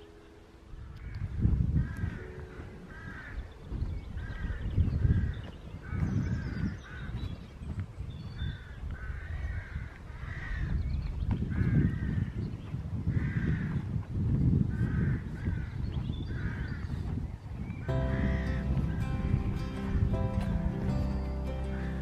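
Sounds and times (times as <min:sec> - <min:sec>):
wind rumble on microphone: 0:00.0 - 0:22.0
crows cawing: 0:00.8 - 0:07.2, 0:08.4 - 0:10.8, 0:13.1 - 0:13.8, 0:14.7 - 0:17.0, 0:17.8 - 0:22.0.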